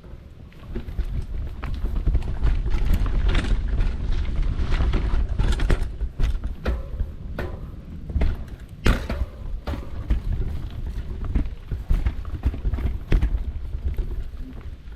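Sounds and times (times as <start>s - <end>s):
bike knocks and rattles: 0.0s - 14.9s
wind buffeting microphone: 0.0s - 14.9s.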